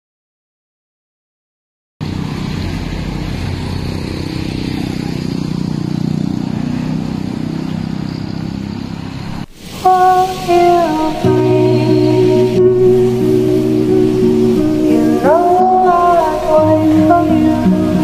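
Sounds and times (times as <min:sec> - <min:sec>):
vehicle engine running: 0:02.0 - 0:18.0
music: 0:09.8 - 0:18.0.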